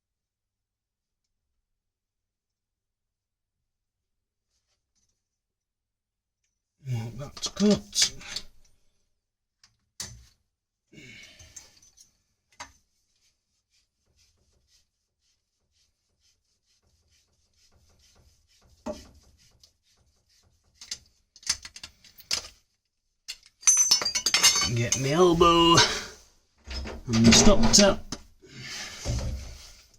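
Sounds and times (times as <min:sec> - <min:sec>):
rubbing: 0:12.8 - 0:21.5
knocks of pipe and tools handled: 0:20.8 - 0:22.6.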